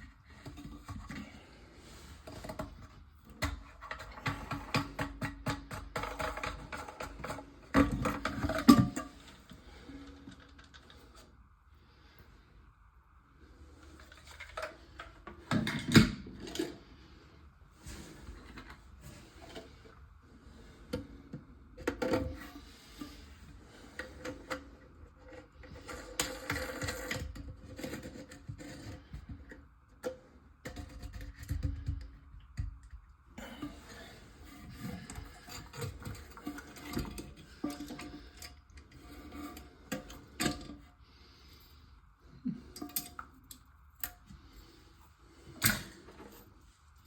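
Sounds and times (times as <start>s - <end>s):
hands working with parts and tools: 2.1s - 11.3s, 20.7s - 41.0s, 42.3s - 46.9s.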